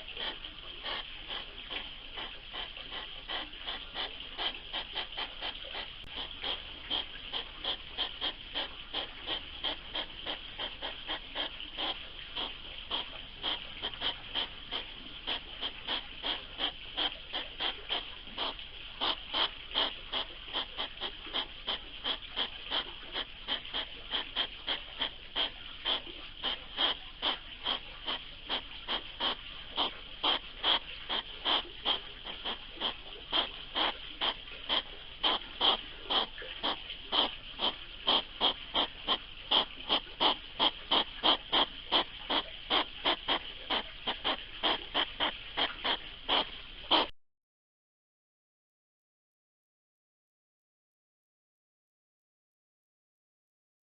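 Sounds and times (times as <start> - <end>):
hedgehogs huffing: 0.0 - 47.1.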